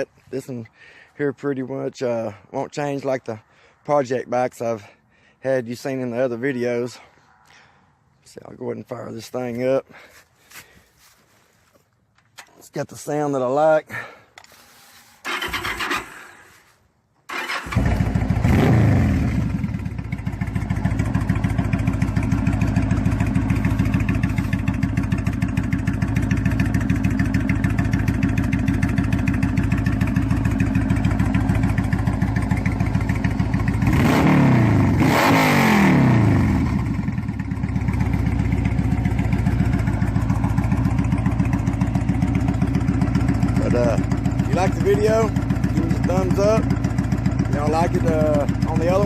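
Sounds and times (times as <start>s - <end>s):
motorcycle engine starting and idling: 13.9s - 49.0s.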